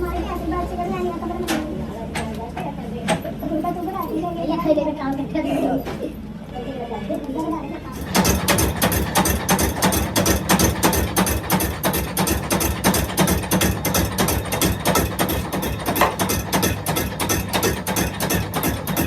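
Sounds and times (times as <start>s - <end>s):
machinery clattering: 7.9s - 19.0s.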